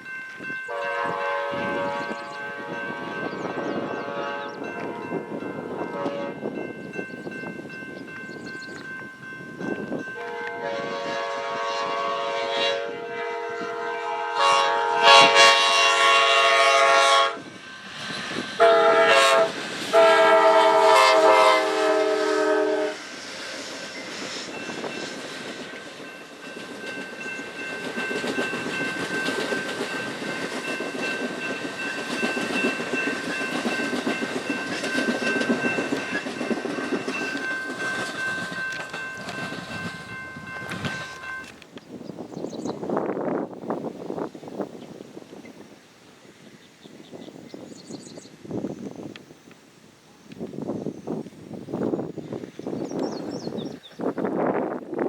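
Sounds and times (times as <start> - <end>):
train rumbling past: 0.0 - 49.6, 50.2 - 55.0
locomotive air horn: 0.7 - 5.3, 5.9 - 6.4, 10.2 - 17.5, 18.6 - 23.1
wheels clicking over rail joints: 24.6 - 41.9.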